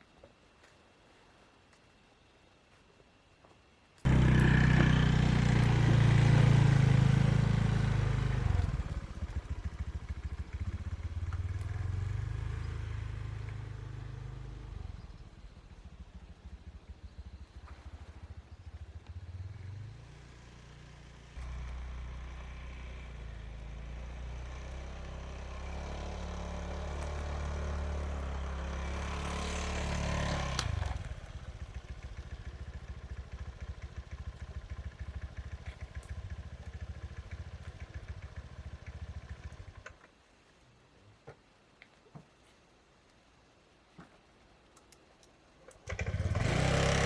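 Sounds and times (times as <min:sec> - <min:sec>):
small engine running: 0:04.1 - 0:39.8, 0:45.8 - 0:47.0.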